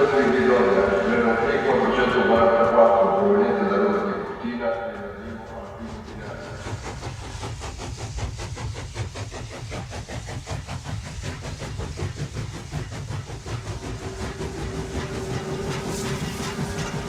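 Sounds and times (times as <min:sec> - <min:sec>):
model train rumbling: 0:00.0 - 0:17.0
wheels clicking on rails: 0:00.0 - 0:17.0
steady whine: 0:13.0 - 0:17.0.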